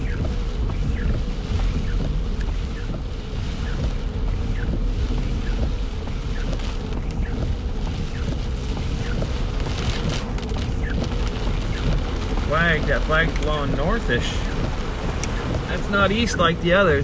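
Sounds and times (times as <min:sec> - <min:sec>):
heavy rain on car: 0:00.0 - 0:17.0
windshield wipers: 0:00.0 - 0:17.0.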